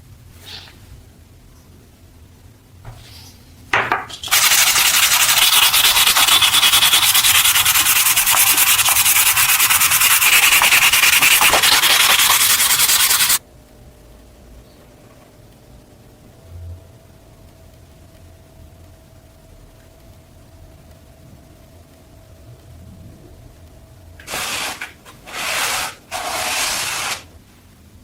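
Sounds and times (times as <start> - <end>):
power sander running: 4.3 - 13.4.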